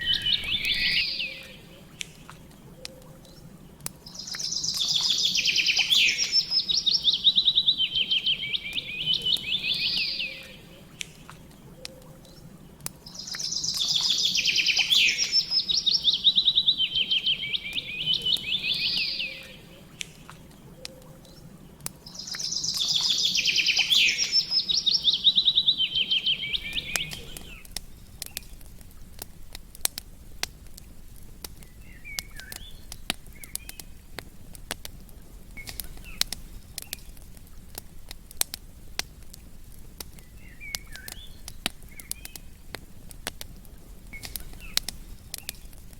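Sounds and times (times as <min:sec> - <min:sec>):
songbird trilling: 0:00.0 - 0:02.0, 0:04.1 - 0:10.8, 0:13.1 - 0:19.7, 0:22.1 - 0:27.7
campfire crackling and popping: 0:00.0 - 0:45.9.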